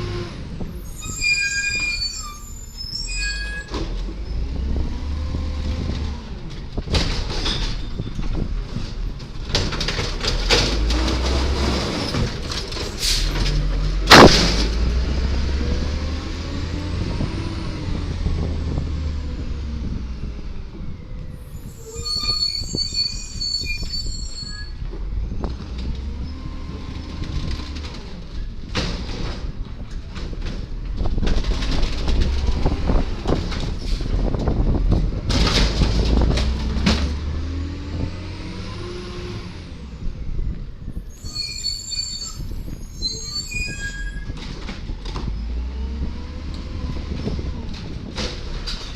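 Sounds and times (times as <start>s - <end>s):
clanks and knocks: 5.9s - 15.0s
loud bang: 14.0s - 15.0s
high-pitched squeal: 21.4s - 24.8s.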